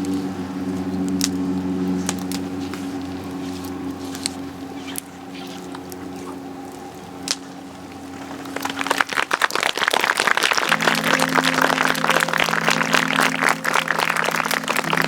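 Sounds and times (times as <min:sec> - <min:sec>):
low hum: 0:00.0 - 0:15.0
audience applause: 0:08.2 - 0:15.0.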